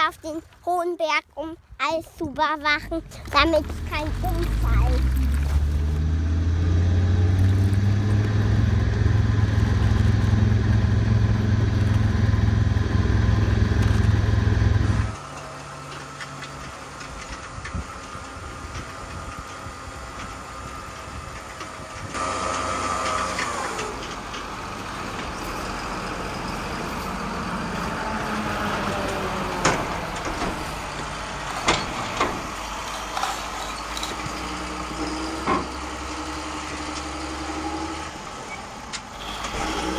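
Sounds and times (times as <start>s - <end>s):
heavy truck engine rumble: 1.8s - 39.9s
engine running with whine: 3.0s - 39.9s.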